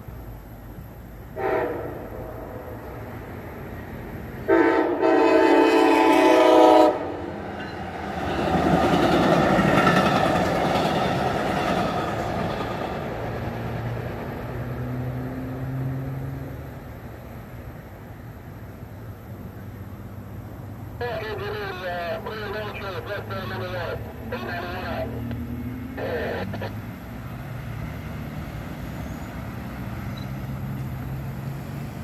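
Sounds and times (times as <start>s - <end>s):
train rushing past: 1.2s - 32.0s
train horn blast: 1.4s - 2.7s, 4.5s - 7.2s.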